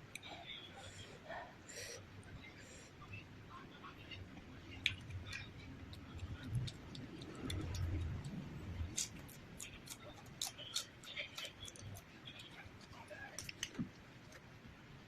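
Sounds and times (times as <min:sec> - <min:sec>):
person chewing with mouth smacks: 0:04.8 - 0:14.5.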